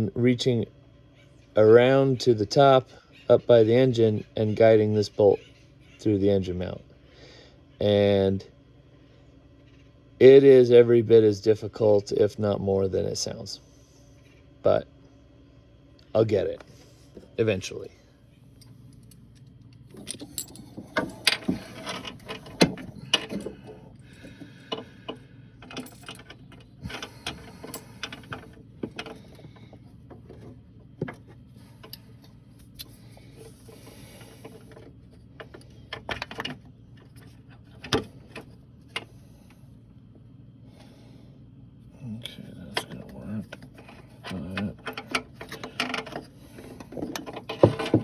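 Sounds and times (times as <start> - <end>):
metal clinks and knocks: 18.6 - 32.2, 43.5 - 48.0.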